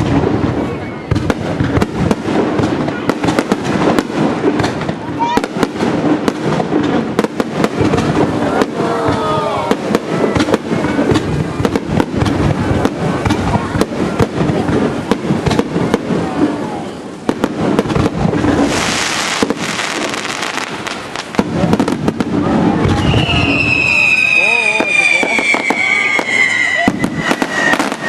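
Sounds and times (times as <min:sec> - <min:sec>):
fireworks bursting: 0:00.0 - 0:28.0
fireworks hissing crackle: 0:00.0 - 0:28.0
high falling whistle: 0:22.9 - 0:28.0.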